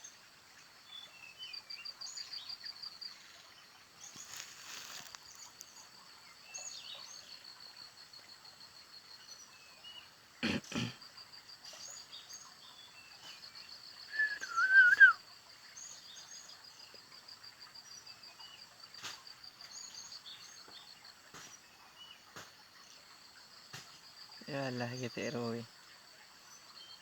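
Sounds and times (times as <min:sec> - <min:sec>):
small birds chirping: 0:00.0 - 0:27.0
high insect trill: 0:13.3 - 0:15.2
loud wavering whistle: 0:14.1 - 0:15.2.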